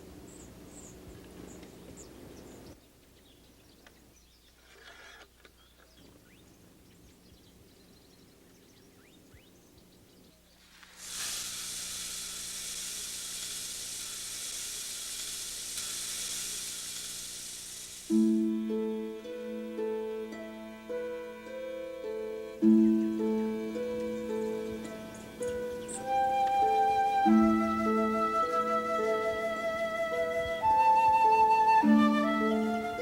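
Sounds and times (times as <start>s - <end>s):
faint bird chirps: 5.3s - 10.8s
steady hiss: 10.5s - 33.0s.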